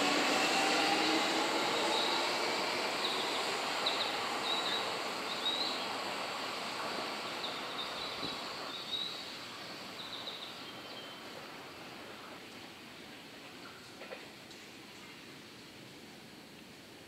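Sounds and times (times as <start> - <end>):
electric train running: 0.0 - 10.2.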